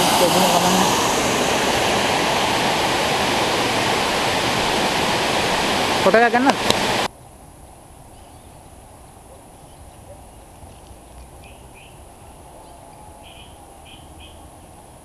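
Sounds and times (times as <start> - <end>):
high bird chirps: 11.4 - 14.5.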